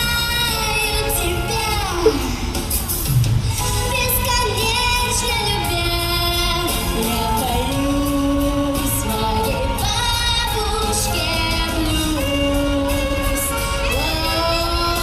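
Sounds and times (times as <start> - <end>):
backing track: 0.0 - 15.0
girl singing blues: 3.6 - 15.0.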